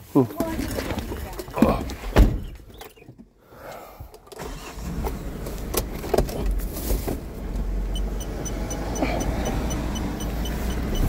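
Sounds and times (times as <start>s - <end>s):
vehicle engine rumbling: 0.0s - 11.0s
rapid electronic beeping: 8.0s - 11.0s.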